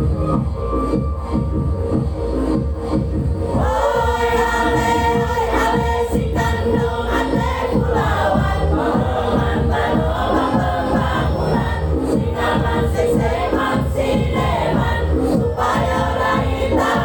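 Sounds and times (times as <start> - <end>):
backing music with steady beat: 0.0 - 17.0
choir singing: 3.6 - 17.0.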